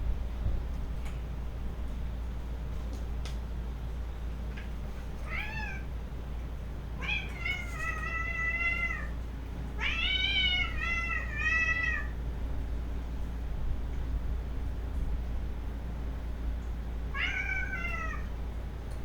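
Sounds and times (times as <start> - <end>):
low steady hum: 0.0 - 19.0
cat meowing: 5.2 - 5.9, 7.0 - 9.2, 9.8 - 12.2, 17.1 - 18.3.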